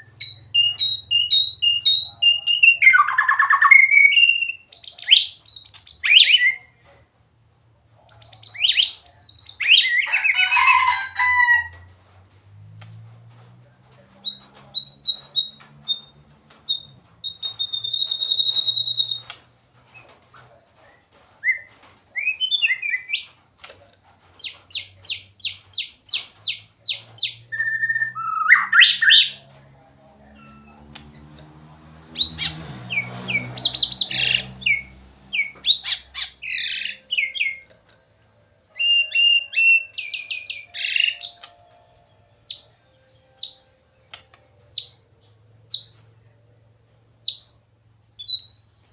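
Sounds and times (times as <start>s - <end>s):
bird singing whistles: 0.0s - 6.7s, 16.7s - 19.3s, 38.8s - 41.5s.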